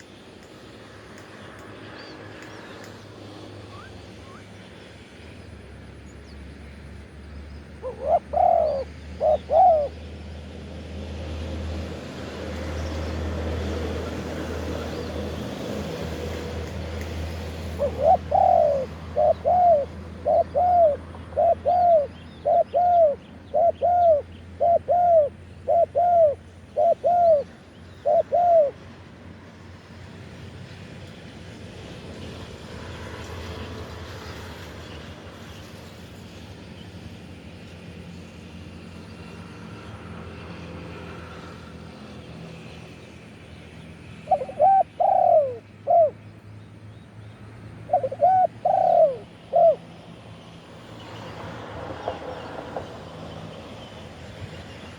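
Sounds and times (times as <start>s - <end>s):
dove cooing: 7.8s - 10.0s, 17.7s - 28.8s, 44.2s - 46.2s, 47.9s - 49.9s.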